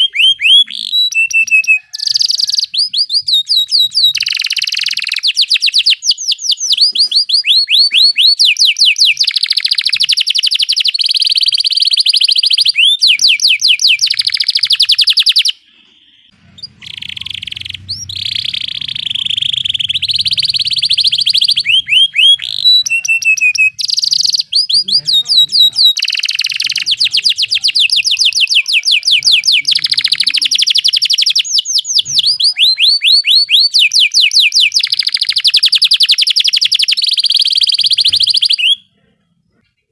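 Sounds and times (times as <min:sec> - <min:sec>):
canary singing trills: 0:00.0 - 0:39.6.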